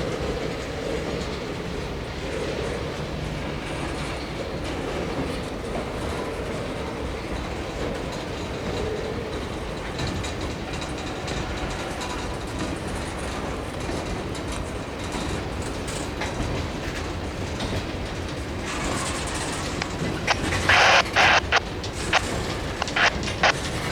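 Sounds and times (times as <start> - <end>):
train cars rumbling on rails: 0.0 - 23.9
wheels clicking over rail joints: 7.2 - 20.2.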